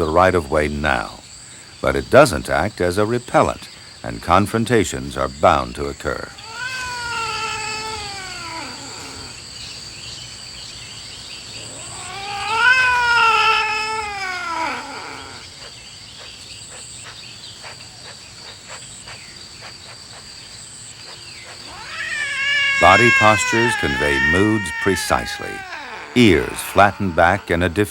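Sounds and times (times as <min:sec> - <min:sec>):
cats yowling: 0:06.4 - 0:09.4, 0:11.6 - 0:15.7, 0:21.5 - 0:27.9.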